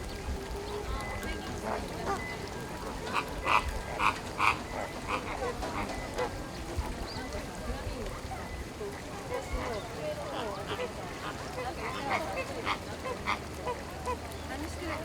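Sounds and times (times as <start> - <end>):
flamingos honking: 0.8 - 7.4, 9.3 - 14.2.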